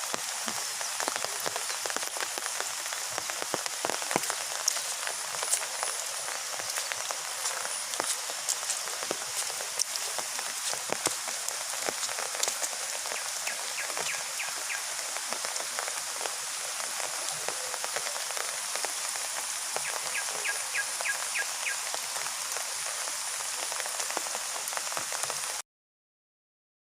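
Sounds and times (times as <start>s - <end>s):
heavy rain pattering: 0.0s - 25.6s.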